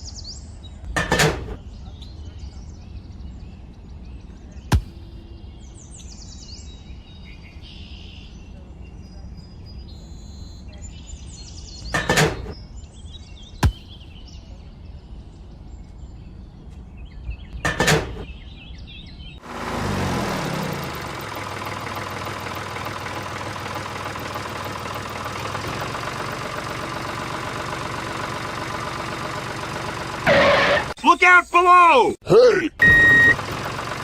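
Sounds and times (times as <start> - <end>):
faint bird chirps: 1.6 - 12.0.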